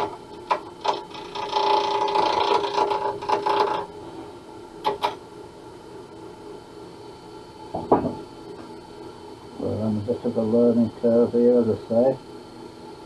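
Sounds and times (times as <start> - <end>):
turning tool scraping acrylic: 0.0 - 3.9
lathe humming: 0.0 - 13.0.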